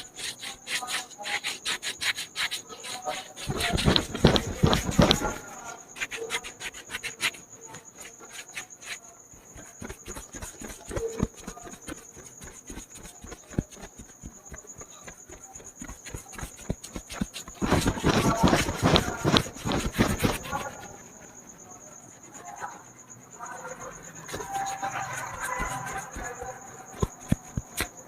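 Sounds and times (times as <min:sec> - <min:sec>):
hands tapping and rubbing hair: 0:03.4 - 0:05.4, 0:09.6 - 0:20.7, 0:24.4 - 0:28.0.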